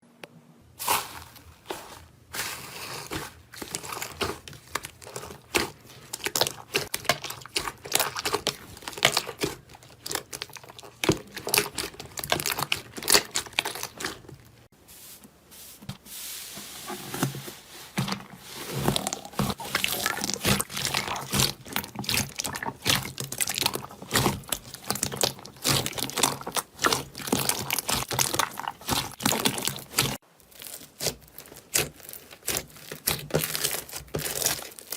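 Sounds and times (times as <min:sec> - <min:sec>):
slime crackling and popping: 0:03.6 - 0:14.6, 0:18.9 - 0:34.9.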